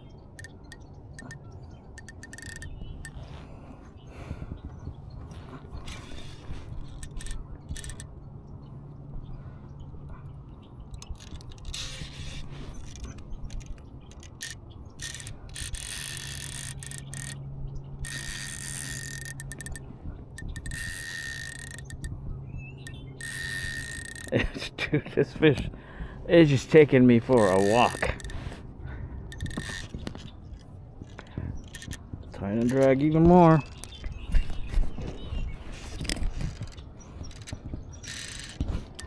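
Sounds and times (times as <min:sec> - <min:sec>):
fishing reel drag buzzing: 0:00.4 - 0:03.6, 0:05.4 - 0:08.1, 0:10.9 - 0:22.2, 0:22.8 - 0:24.4, 0:26.5 - 0:28.6, 0:29.3 - 0:32.0, 0:33.6 - 0:39.0.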